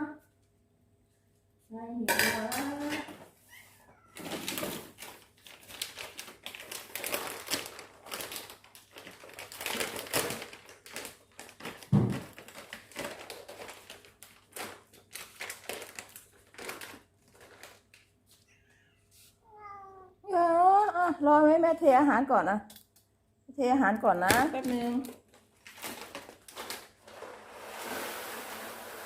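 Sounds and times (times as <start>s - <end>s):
bowls and packaging clicking: 4.2s - 18.2s, 24.0s - 28.0s.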